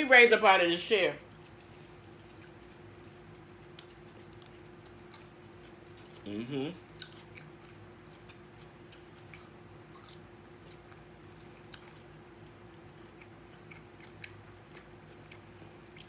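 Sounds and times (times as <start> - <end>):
steady low hum: 0.0 - 16.0
quiet chewing of food: 1.2 - 16.0.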